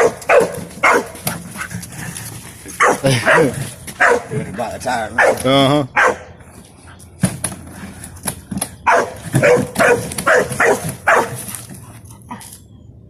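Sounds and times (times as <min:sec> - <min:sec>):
dog barking: 0:00.0 - 0:01.2, 0:02.8 - 0:04.3, 0:05.2 - 0:05.4, 0:06.0 - 0:06.3, 0:08.8 - 0:11.4.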